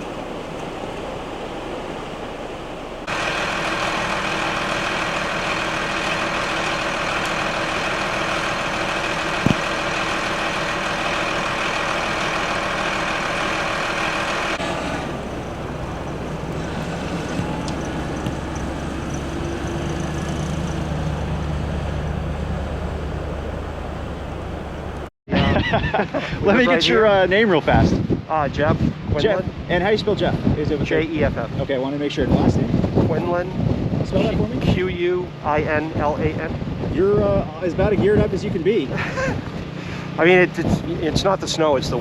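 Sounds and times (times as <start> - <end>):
engine hum: 0.0 - 25.1, 28.1 - 42.0
wind noise: 26.2 - 39.9.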